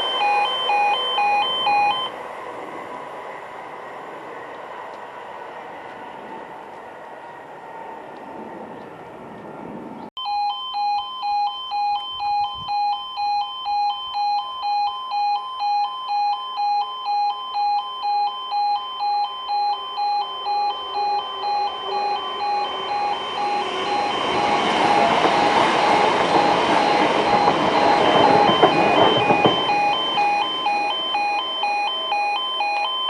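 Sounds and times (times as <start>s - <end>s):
two-tone electronic alarm: 0.0s - 2.2s, 10.2s - 33.0s
passing train: 0.0s - 10.1s, 19.8s - 32.6s.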